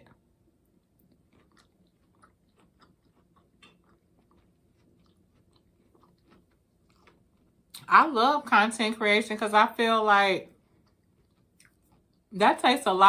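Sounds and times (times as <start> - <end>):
chewing food: 0.0 - 7.9, 10.4 - 12.7.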